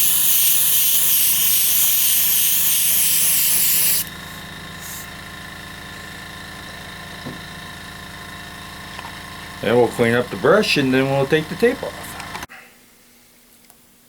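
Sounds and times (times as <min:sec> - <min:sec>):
airbrush spraying hiss: 0:00.0 - 0:05.1
steady low hum: 0:00.0 - 0:13.5.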